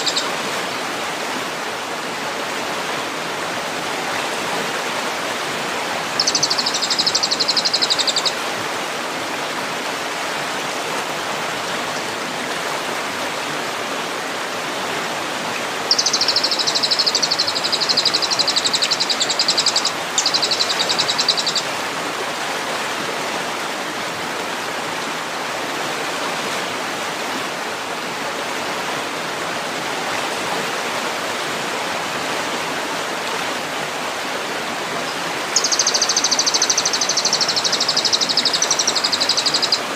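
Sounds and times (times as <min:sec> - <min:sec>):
songbird trilling: 0:00.0 - 0:00.3, 0:06.2 - 0:08.4, 0:15.9 - 0:21.7, 0:35.1 - 0:39.9
rushing water: 0:00.0 - 0:39.9.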